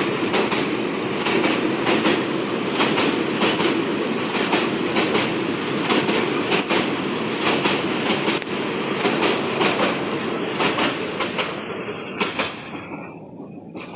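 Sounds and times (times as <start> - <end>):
train wheels clattering over rail joints: 0.0 - 13.9
high-pitched wheel squeals: 5.1 - 5.6, 6.6 - 8.6.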